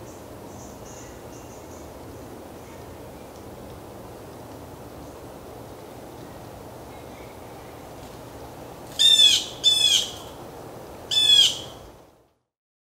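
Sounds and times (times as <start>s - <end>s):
low background hum: 0.0s - 12.4s
bird calling falling notes: 9.0s - 10.3s, 11.1s - 11.8s.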